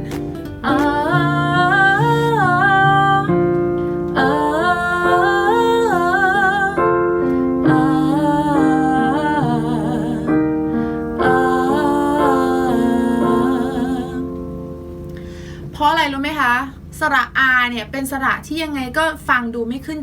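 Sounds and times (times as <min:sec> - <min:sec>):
piano accompaniment: 0:00.0 - 0:16.9
woman singing on an ah vowel: 0:00.6 - 0:14.7.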